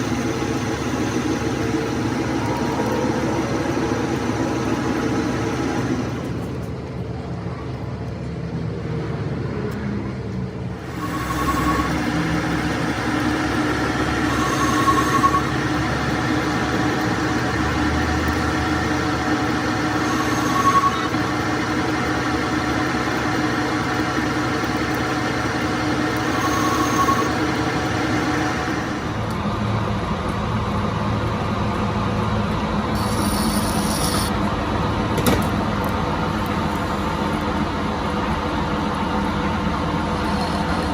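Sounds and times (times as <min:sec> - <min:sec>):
metal lathe cutting steel: 0:00.0 - 0:06.6, 0:10.8 - 0:29.9, 0:32.0 - 0:34.9
brief high tones: 0:10.9 - 0:12.4, 0:14.2 - 0:15.7.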